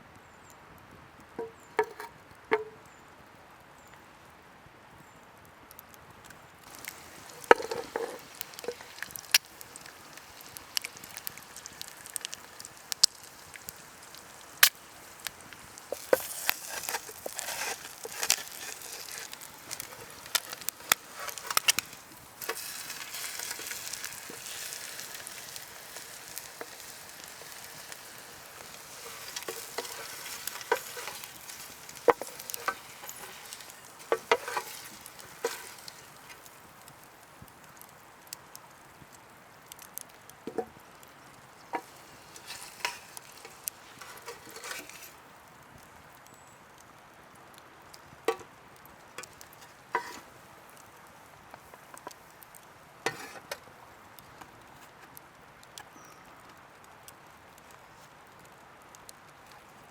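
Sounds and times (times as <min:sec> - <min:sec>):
food sizzling over campfire: 0:01.3 - 0:03.0, 0:05.7 - 0:59.9
sharp clicks and knocks: 0:01.4 - 0:02.8.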